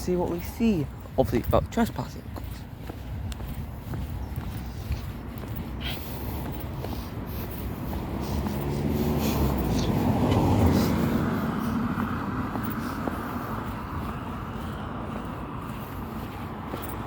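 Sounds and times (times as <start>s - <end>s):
motor vehicle passing by: 3.8s - 17.0s.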